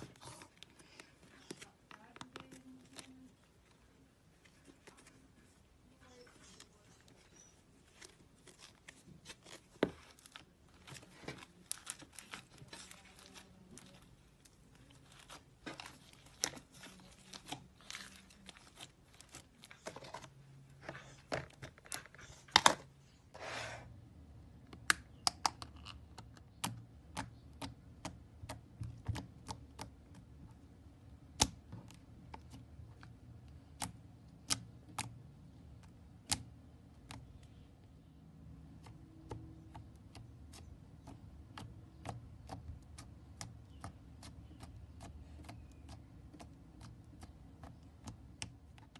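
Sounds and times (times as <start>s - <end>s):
slime squelching: 0.0s - 22.5s.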